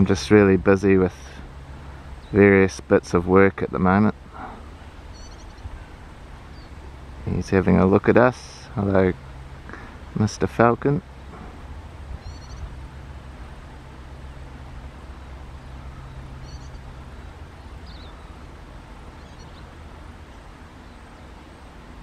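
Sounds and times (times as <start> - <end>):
low hum and hiss: 0.0 - 22.0
faint bird chirps: 4.4 - 6.8, 12.2 - 13.1, 15.1 - 21.4.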